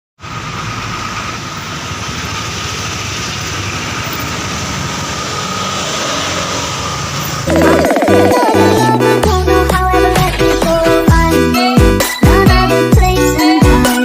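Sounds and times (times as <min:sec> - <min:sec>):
road noise: 0:00.2 - 0:11.1.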